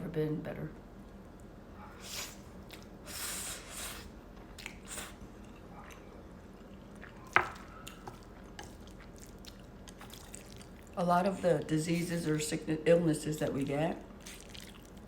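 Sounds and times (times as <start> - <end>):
wet chewing: 3.7 - 11.0, 14.1 - 15.0.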